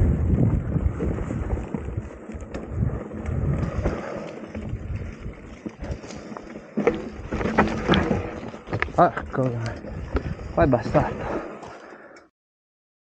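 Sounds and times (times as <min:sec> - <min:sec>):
wind gusts on microphone: 0:00.0 - 0:06.0, 0:07.1 - 0:11.4
tyres rolling over dirt: 0:00.0 - 0:11.9
bike clicks and knocks: 0:01.0 - 0:10.5.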